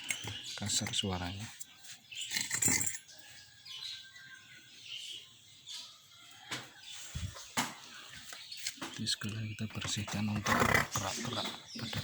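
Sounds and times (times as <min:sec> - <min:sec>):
faint bird chirps: 0:00.0 - 0:10.4.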